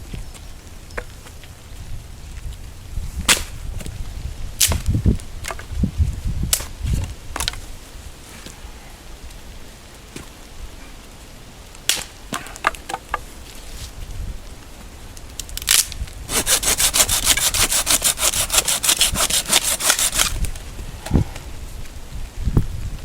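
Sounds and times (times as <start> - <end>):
dry branches snapping: 3.2 - 4.0, 4.6 - 5.8, 6.5 - 7.6, 11.7 - 14.2, 14.8 - 20.8.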